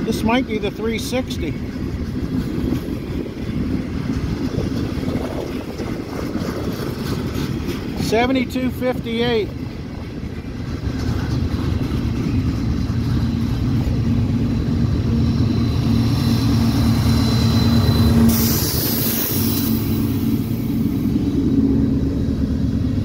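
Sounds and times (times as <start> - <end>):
diesel locomotive engine drone: 0.0 - 23.0
train wheels rumbling on rails: 0.0 - 23.0
rushing hiss: 18.3 - 21.5.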